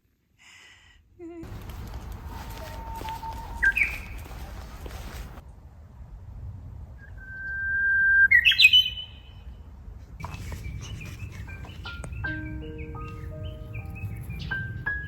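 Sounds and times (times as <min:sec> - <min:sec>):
songbird singing: 0:01.4 - 0:05.4, 0:07.1 - 0:09.6, 0:10.2 - 0:15.0
faint bird chirps: 0:02.4 - 0:04.3.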